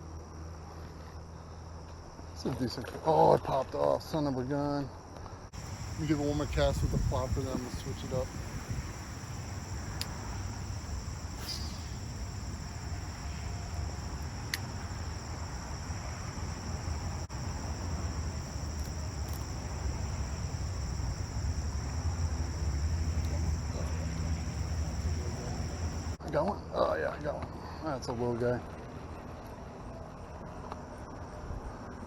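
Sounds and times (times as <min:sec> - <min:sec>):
insects droning: 0:00.0 - 0:29.1
low outdoor rumble: 0:05.6 - 0:26.2
faint clicks: 0:09.9 - 0:10.3, 0:14.2 - 0:15.1, 0:18.7 - 0:19.6.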